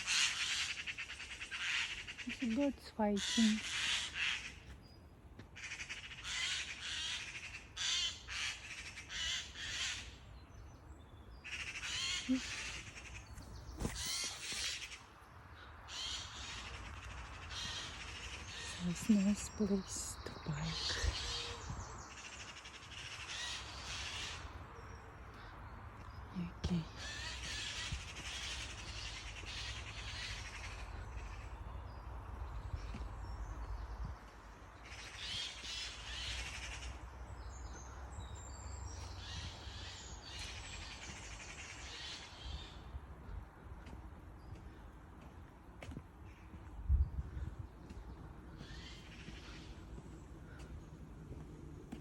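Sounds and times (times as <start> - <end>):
crow cawing: 0.0 - 2.4, 3.2 - 4.7, 5.6 - 10.2, 11.4 - 13.3, 15.6 - 18.8
crows cawing: 0.0 - 4.8, 5.5 - 10.2, 11.4 - 18.9, 20.8 - 24.6, 27.0 - 31.9, 34.8 - 37.1, 48.6 - 50.9.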